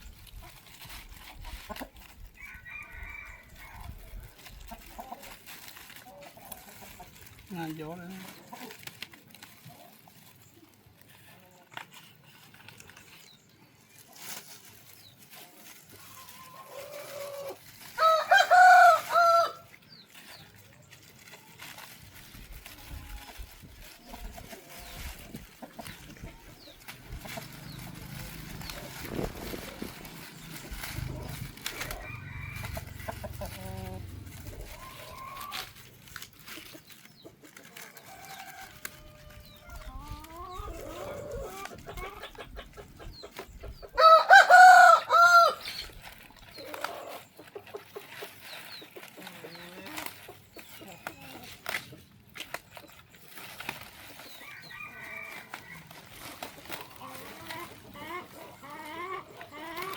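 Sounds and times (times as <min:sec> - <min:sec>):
faint chicken clucking: 0:00.0 - 0:59.9
rooster crowing: 0:18.0 - 0:19.6, 0:31.2 - 0:34.1, 0:44.0 - 0:45.6, 0:54.4 - 0:55.9.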